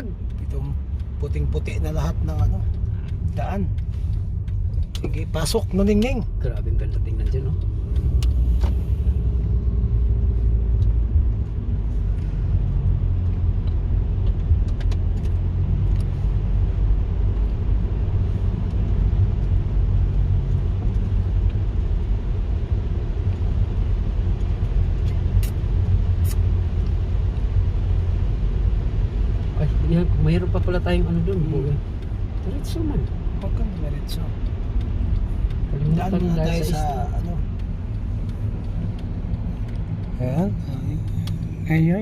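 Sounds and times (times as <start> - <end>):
car engine and tyres rumbling: 0.0 - 42.0
faint clicks: 37.0 - 42.0.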